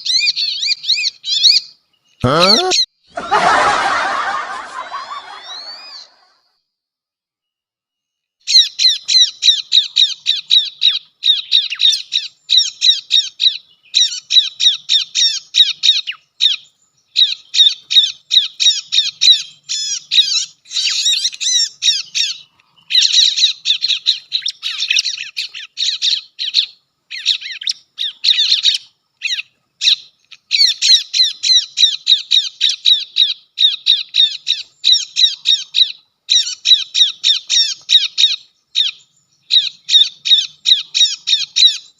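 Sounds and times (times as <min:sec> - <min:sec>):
bird sharp high chirps: 0:08.5 - 0:41.9.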